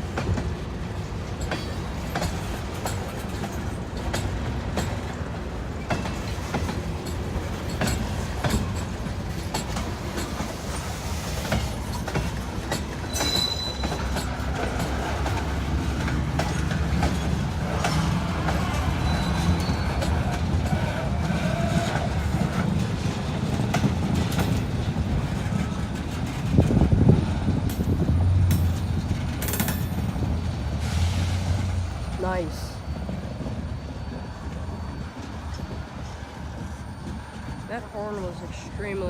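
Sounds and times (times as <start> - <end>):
train wheels clickety-clack: 0.0 - 39.0
high wheel squeal: 13.0 - 14.6, 16.5 - 22.7, 30.1 - 38.4.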